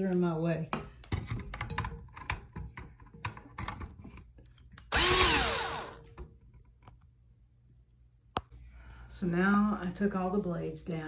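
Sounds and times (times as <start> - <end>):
power drill whining: 4.9 - 6.1.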